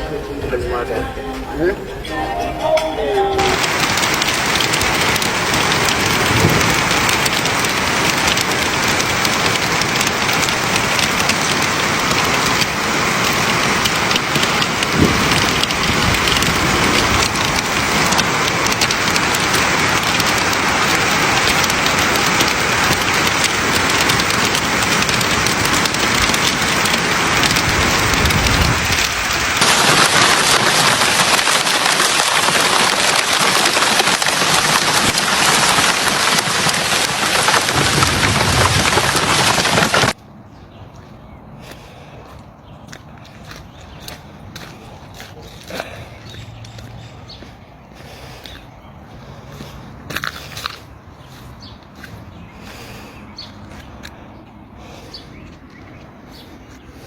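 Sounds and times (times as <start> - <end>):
hail and heavy rain pelting: 3.4 - 40.2
heavy hail knocks: 3.4 - 40.2.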